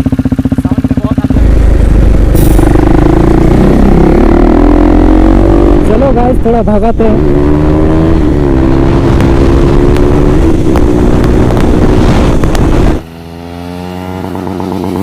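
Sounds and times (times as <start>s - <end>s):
motorcycle engine running loud: 0.0s - 15.0s
wind on microphone: 8.0s - 13.0s.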